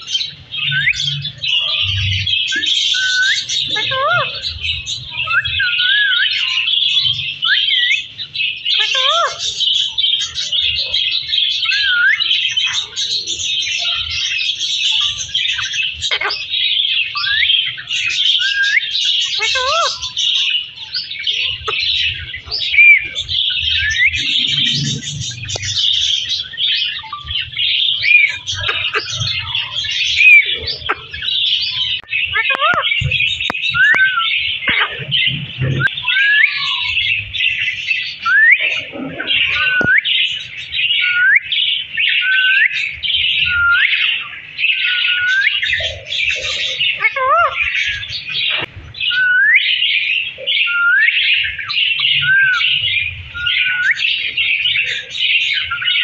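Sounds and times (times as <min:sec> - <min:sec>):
parrot chirping and chattering: 0:00.0 - 0:56.0.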